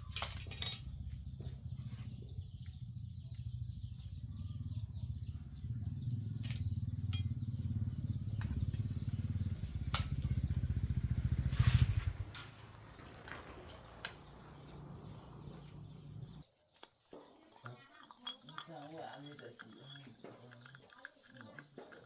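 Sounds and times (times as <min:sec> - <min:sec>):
small engine running: 0:00.0 - 0:16.4.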